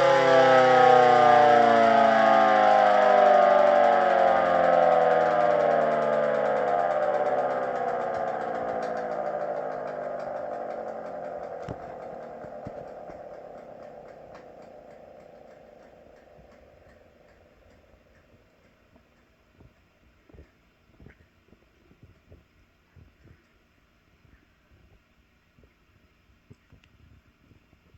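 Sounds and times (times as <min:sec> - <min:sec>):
siren winding down: 0:00.0 - 0:18.8
sharp clicks and knocks: 0:01.8 - 0:22.4.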